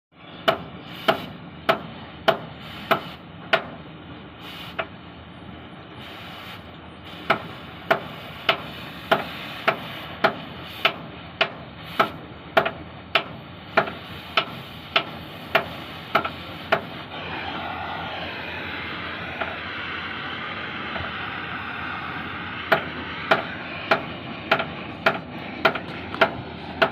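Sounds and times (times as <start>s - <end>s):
steady rushing noise: 13.8s - 26.9s
hammer striking metal: 22.6s - 26.9s.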